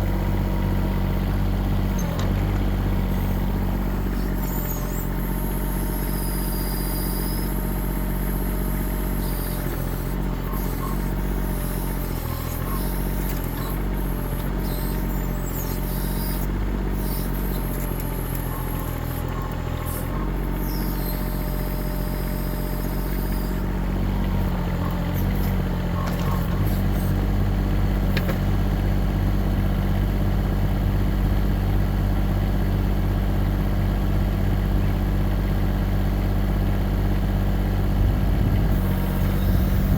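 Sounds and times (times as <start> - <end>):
diesel engine running: 0.0 - 39.9
faint high squeaks: 4.0 - 5.2, 17.1 - 23.7, 38.8 - 39.9.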